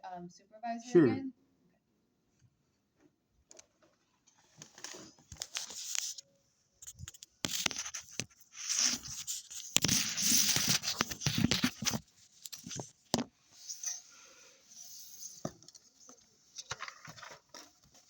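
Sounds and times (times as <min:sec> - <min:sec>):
rustling and scraping: 0:03.0 - 0:06.2, 0:06.8 - 0:18.0.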